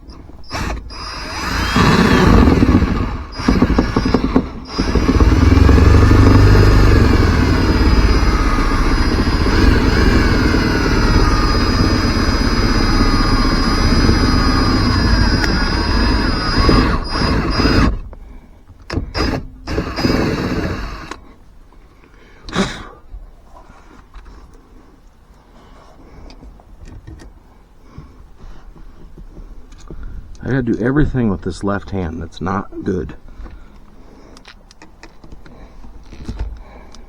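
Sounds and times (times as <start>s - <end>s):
power drill whining: 0.0s - 18.2s, 18.9s - 21.2s.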